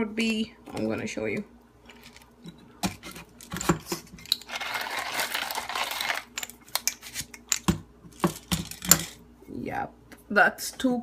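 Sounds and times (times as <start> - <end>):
coffee rustling in grinder: 1.8 - 7.4.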